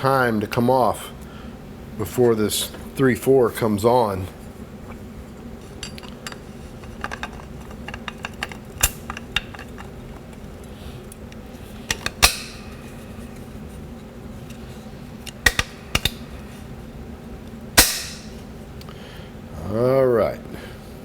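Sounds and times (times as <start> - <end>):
steel parts clicking: 5.8 - 9.9, 11.9 - 13.0, 15.2 - 16.4, 17.8 - 18.4
metallic clacks: 17.8 - 18.4.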